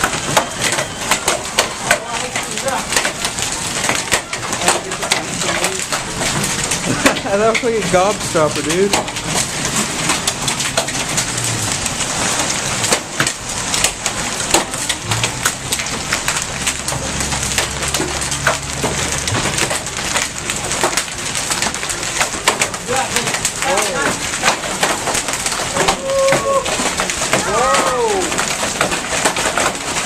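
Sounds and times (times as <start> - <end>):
hailstones striking hard surfaces: 0.0 - 30.0
heavy rain hissing: 0.0 - 30.0.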